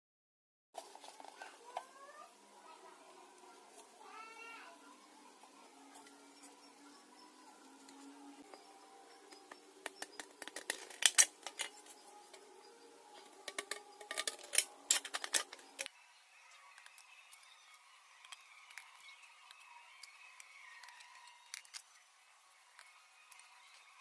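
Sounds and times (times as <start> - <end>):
scissors snipping tin: 9.4 - 11.8, 13.4 - 15.9.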